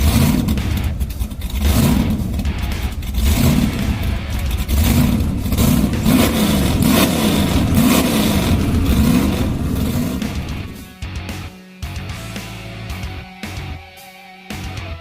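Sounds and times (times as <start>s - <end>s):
car engine revving: 0.0s - 11.5s.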